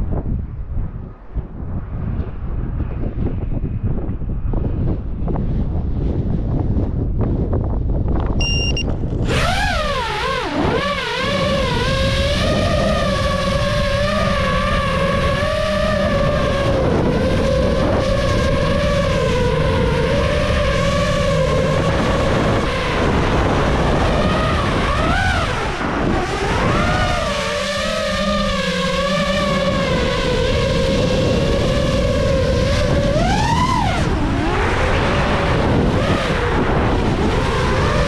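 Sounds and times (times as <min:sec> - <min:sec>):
wind rumble on microphone: 0:00.0 - 0:38.0
short beeps: 0:08.4 - 0:08.9
drone motors whining: 0:08.4 - 0:38.0.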